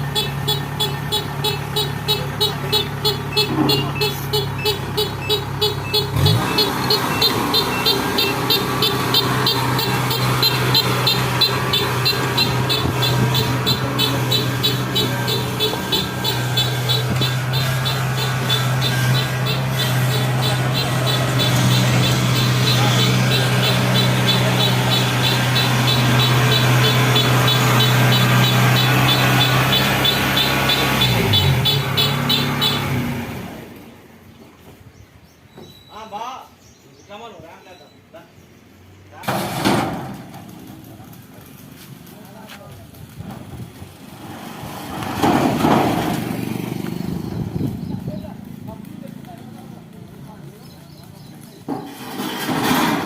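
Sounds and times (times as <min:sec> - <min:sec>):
engine running: 0:00.0 - 0:34.2, 0:39.7 - 0:53.0.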